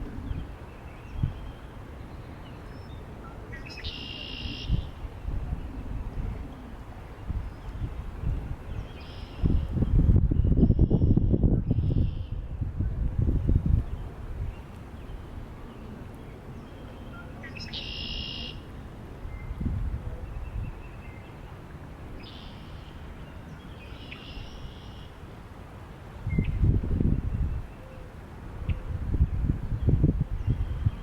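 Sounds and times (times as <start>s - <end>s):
wind buffeting microphone: 0.0s - 2.1s, 4.6s - 16.6s, 19.0s - 22.3s, 26.2s - 27.8s, 28.4s - 31.0s
low wind rumble: 0.0s - 31.0s.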